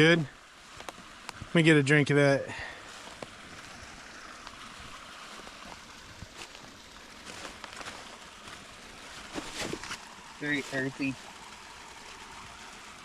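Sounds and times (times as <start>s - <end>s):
trickling water: 0.0s - 13.0s.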